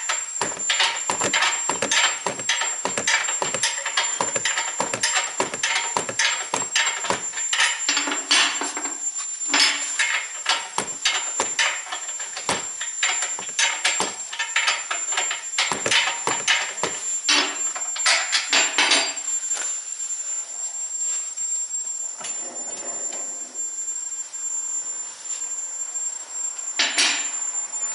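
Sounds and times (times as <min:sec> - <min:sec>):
hand tools clanking on metal: 0:00.0 - 0:08.9, 0:09.5 - 0:19.2.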